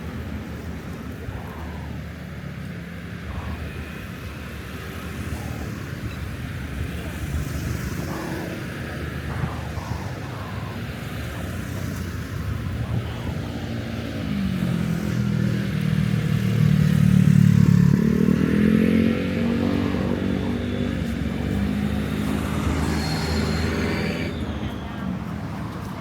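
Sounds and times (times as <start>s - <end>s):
street traffic: 0.0s - 26.0s
vehicle engine passing close: 7.8s - 26.0s.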